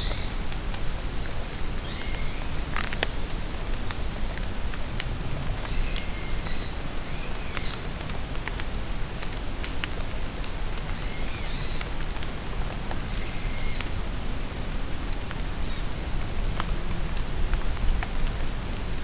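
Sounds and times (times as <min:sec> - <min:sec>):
rain falling in forest: 0:00.0 - 0:19.0.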